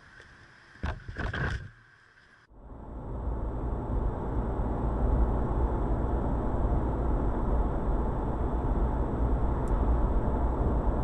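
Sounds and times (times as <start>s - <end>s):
car driving rumble: 2.5s - 11.0s.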